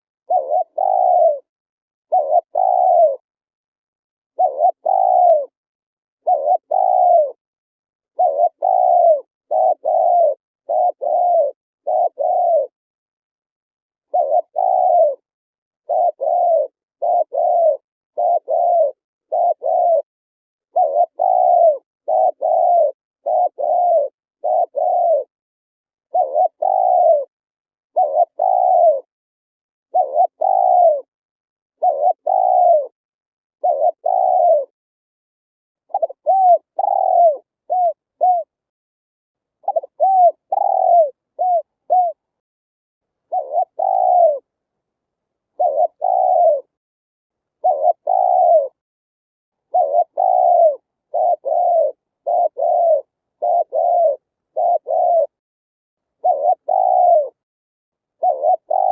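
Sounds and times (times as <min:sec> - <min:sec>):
dove cooing: 0:00.3 - 0:01.5, 0:02.1 - 0:03.2, 0:04.3 - 0:05.6, 0:06.2 - 0:07.4, 0:08.1 - 0:12.8, 0:14.0 - 0:20.1, 0:20.7 - 0:25.3, 0:26.1 - 0:27.3, 0:27.9 - 0:29.1, 0:29.9 - 0:31.1, 0:31.8 - 0:33.0, 0:33.6 - 0:34.8, 0:35.8 - 0:38.6, 0:39.6 - 0:42.3, 0:43.3 - 0:44.5, 0:45.4 - 0:46.8, 0:47.5 - 0:48.8, 0:49.6 - 0:55.4, 0:56.1 - 0:57.4, 0:58.1 - 0:58.9.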